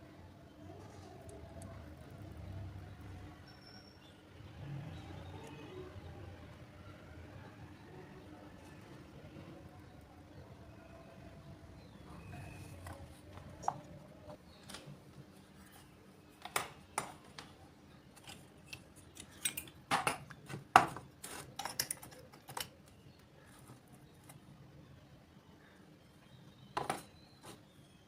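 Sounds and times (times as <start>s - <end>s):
clicks and snips of hand work: 15.8s - 24.4s.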